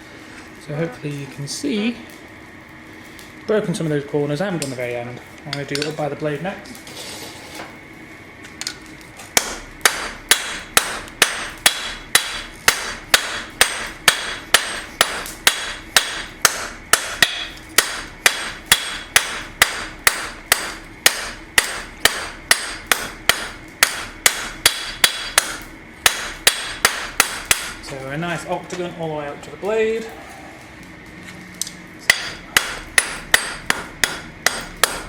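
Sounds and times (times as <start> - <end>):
hammer ringing on anvil: 9.4 - 27.8, 32.1 - 35.0.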